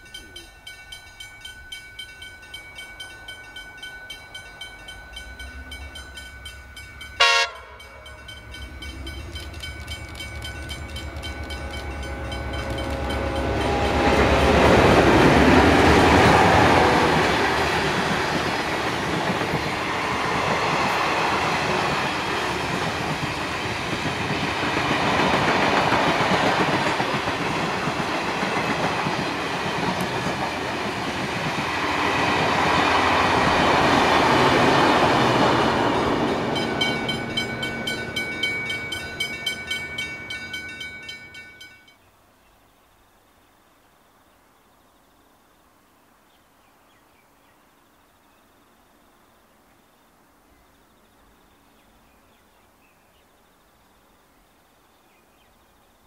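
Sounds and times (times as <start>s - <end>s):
diesel locomotive engines: 0.0s - 41.9s
train horn blast: 7.2s - 9.4s, 11.2s - 15.4s.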